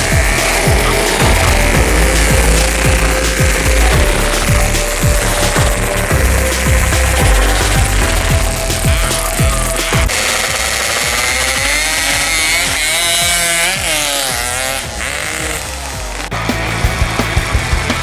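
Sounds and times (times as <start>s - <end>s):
motorcycles passing at high revs: 0.0s - 18.0s.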